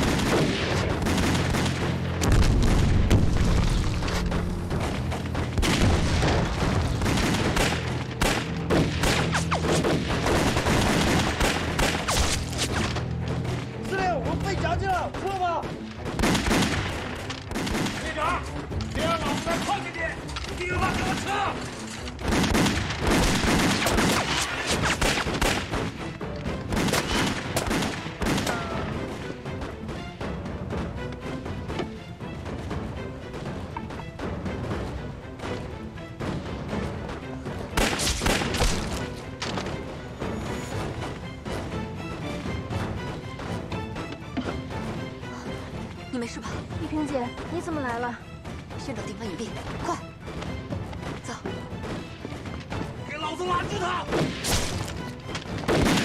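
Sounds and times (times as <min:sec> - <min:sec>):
gunshots volley: 0:00.0 - 0:03.9, 0:05.4 - 0:13.0, 0:15.1 - 0:18.4, 0:22.2 - 0:26.0, 0:26.7 - 0:29.3, 0:37.8 - 0:39.0, 0:53.6 - 0:56.0
gunfire: 0:00.0 - 0:04.0, 0:05.5 - 0:13.0, 0:16.0 - 0:18.2, 0:22.2 - 0:26.0, 0:26.7 - 0:28.9, 0:37.8 - 0:39.0, 0:54.1 - 0:56.0
background music: 0:00.0 - 0:56.0.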